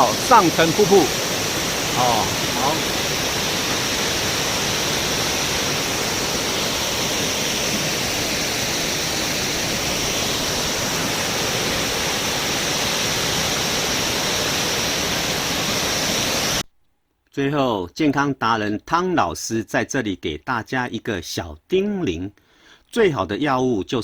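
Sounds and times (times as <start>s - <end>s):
waterfall rushing: 0.0s - 16.6s.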